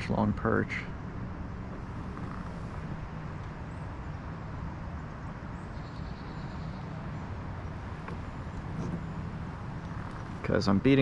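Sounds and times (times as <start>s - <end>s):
strong wind buffeting microphone: 6.8s - 11.0s.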